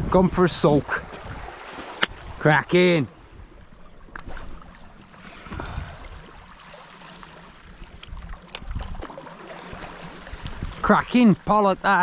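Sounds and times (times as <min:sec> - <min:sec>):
wind rumbling on microphone: 0:00.0 - 0:02.5, 0:03.2 - 0:06.5, 0:07.6 - 0:11.1
sea water washing: 0:00.5 - 0:12.0.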